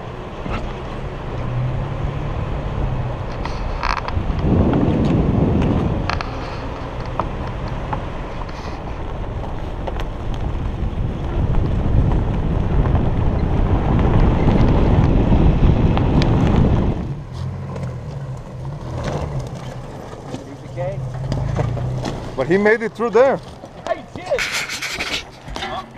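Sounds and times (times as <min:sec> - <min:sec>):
engine and tyre rumble: 0:00.0 - 0:25.9
engine hum: 0:00.0 - 0:25.9
wind rushing over microphone: 0:00.3 - 0:18.8.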